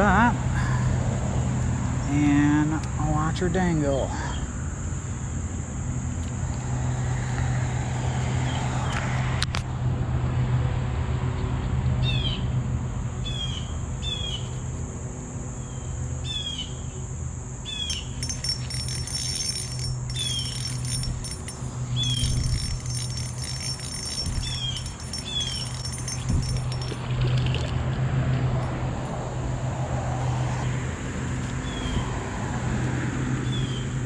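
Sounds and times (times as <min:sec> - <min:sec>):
insect trill: 0:15.6 - 0:27.7.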